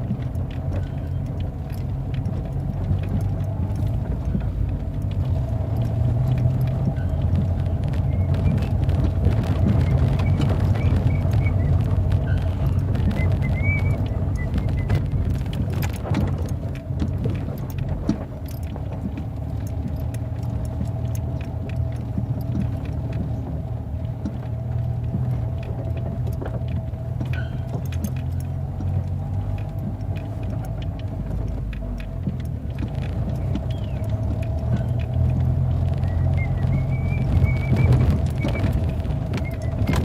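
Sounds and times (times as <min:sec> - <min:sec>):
small rattles and clicks: 0:00.0 - 0:40.0
vehicle engine rumbling: 0:00.0 - 0:40.0.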